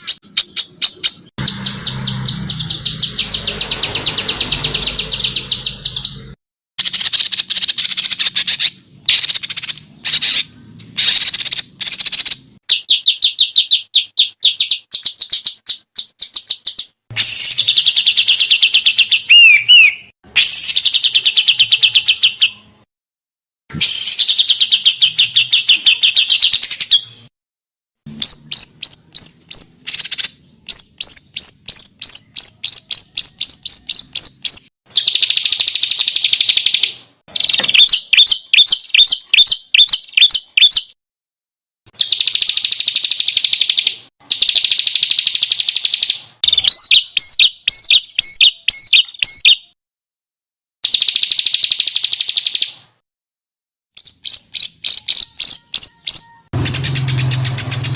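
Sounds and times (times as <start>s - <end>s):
songbird chirps and trills: 54.0s - 57.9s.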